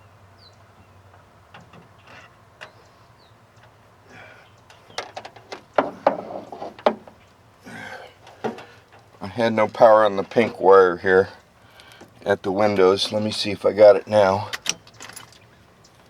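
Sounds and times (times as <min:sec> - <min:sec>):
clicks and knocks of tools: 0:04.7 - 0:06.2, 0:14.5 - 0:15.4.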